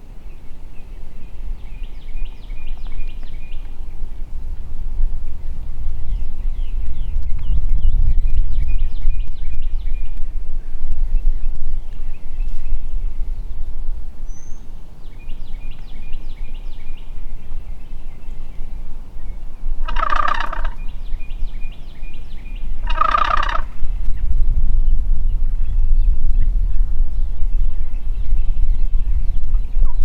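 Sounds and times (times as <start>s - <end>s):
turkey gobbling: 19.8s - 20.9s, 22.8s - 23.8s.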